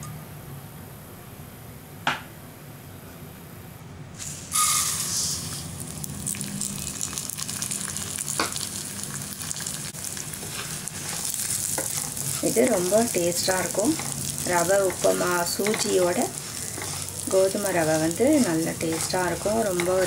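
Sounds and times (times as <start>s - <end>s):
grains poured into hot oil: 4.2s - 20.0s
grains sizzling in oil: 4.2s - 20.0s.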